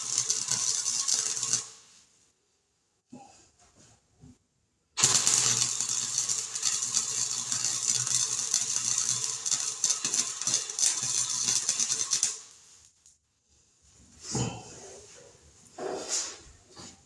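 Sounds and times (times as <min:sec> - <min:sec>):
welding crackle: 0:00.0 - 0:02.0, 0:05.0 - 0:12.9.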